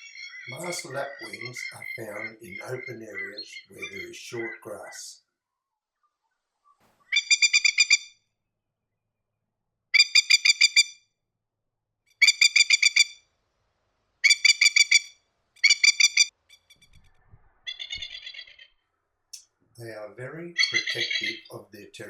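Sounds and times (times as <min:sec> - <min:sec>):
lapwing rattling calls: 0:00.0 - 0:04.9, 0:07.0 - 0:08.2, 0:10.0 - 0:11.0, 0:12.2 - 0:13.2, 0:14.2 - 0:17.0, 0:17.7 - 0:18.7, 0:20.6 - 0:21.5.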